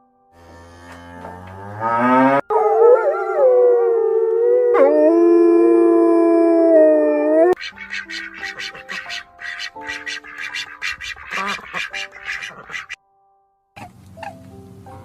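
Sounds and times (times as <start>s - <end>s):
dog-like animal howling: 2.5s - 7.6s.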